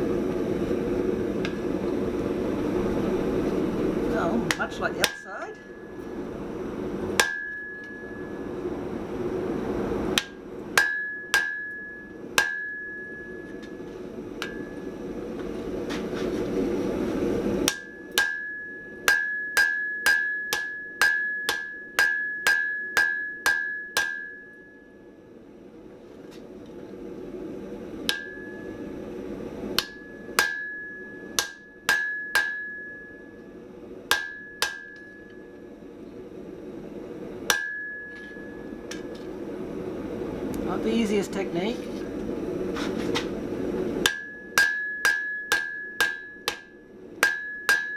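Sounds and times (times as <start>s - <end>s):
steady rushing noise: 0.0s - 11.9s
hammer striking steel on anvil: 4.4s - 6.2s, 7.2s - 8.5s, 10.2s - 15.0s, 17.6s - 25.0s, 28.0s - 29.0s, 29.8s - 33.5s, 34.1s - 35.5s, 37.5s - 39.2s, 44.0s - 47.9s.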